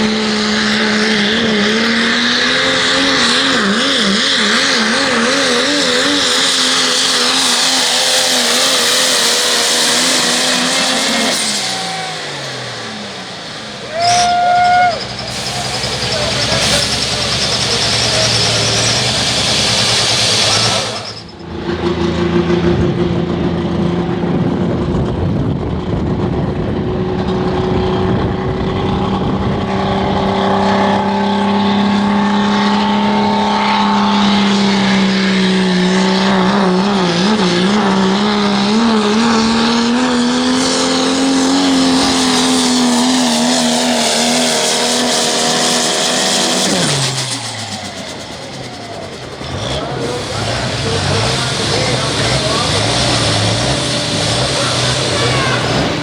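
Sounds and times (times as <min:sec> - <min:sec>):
truck engine at full throttle: 0:00.0 - 0:56.0.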